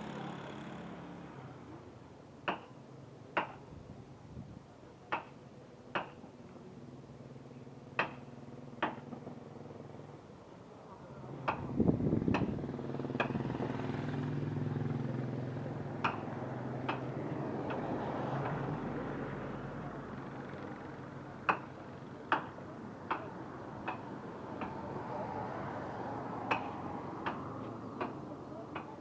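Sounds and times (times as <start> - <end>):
vehicle engine passing: 11.2 - 29.0.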